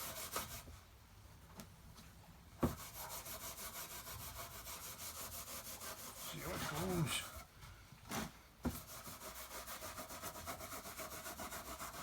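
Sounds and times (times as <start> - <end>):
wire wool rubbing wood: 5.6 - 7.4.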